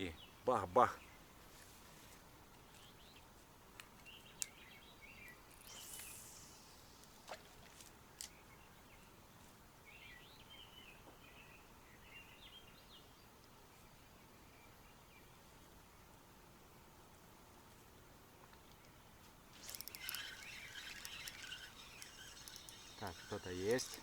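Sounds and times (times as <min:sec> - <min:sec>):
faint bird chirps: 0:04.0 - 0:07.4, 0:19.6 - 0:24.0
brief hiss: 0:05.6 - 0:07.4
soft clicks: 0:19.6 - 0:24.0.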